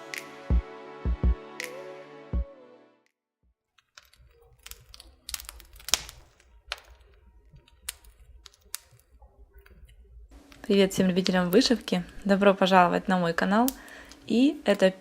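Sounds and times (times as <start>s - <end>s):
small objects clicking and tapping: 3.7s - 12.2s, 13.6s - 15.0s.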